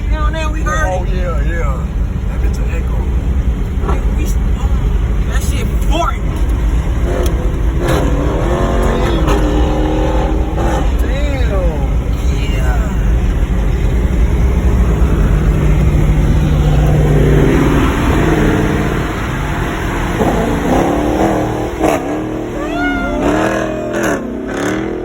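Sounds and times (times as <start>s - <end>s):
loud car engine accelerating: 0.0s - 25.0s
wavering siren wail: 22.5s - 24.7s.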